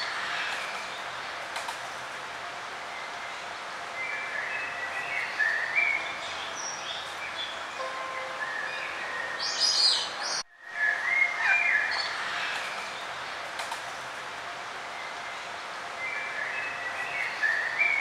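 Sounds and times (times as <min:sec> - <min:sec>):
outdoor ambience hiss: 0:00.0 - 0:18.0
songbirds chirping and warbling: 0:02.8 - 0:13.5, 0:14.8 - 0:18.0.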